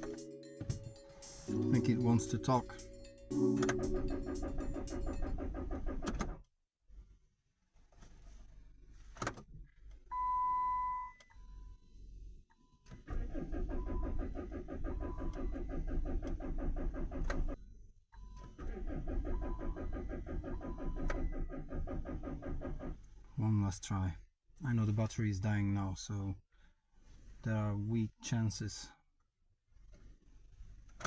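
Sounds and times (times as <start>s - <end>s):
starter cranking engine: 0.0s - 6.4s, 13.0s - 17.6s, 18.6s - 23.2s.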